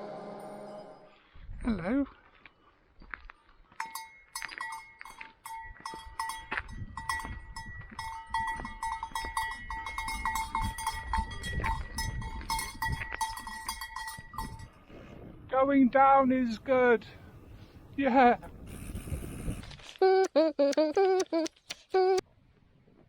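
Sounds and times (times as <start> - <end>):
livestock bells clanking: 3.7 - 14.8.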